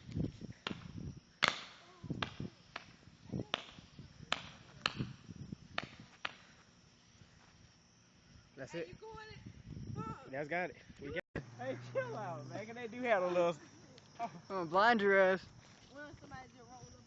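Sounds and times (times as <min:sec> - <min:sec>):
fireworks cracking and popping: 0:00.0 - 0:06.5.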